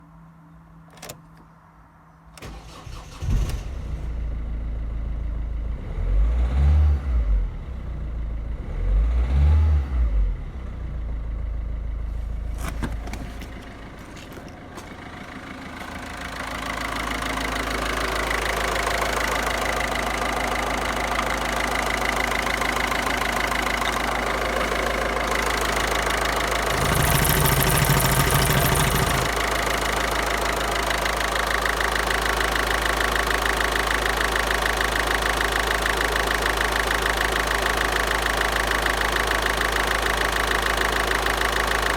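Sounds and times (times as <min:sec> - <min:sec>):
diesel engine starting: 0:02.4 - 0:41.9
engine revving: 0:05.7 - 0:07.6, 0:08.5 - 0:10.5, 0:24.2 - 0:29.5
diesel engine idling: 0:10.3 - 0:41.9.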